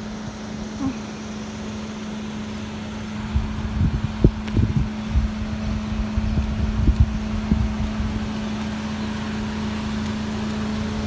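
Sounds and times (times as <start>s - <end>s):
car engine idling: 0.0s - 11.0s
wind buffeting microphone: 3.1s - 9.6s.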